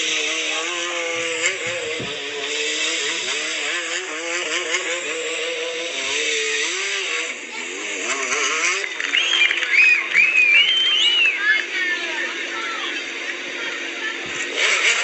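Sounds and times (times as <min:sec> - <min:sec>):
motorcycle engine revving: 0:00.0 - 0:15.0
high rising and falling squeals: 0:08.5 - 0:11.6.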